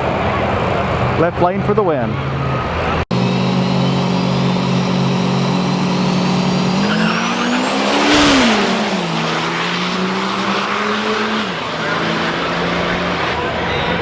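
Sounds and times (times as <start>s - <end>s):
diesel truck engine revving: 0.0s - 14.0s
turbocharger whistle: 3.1s - 14.0s.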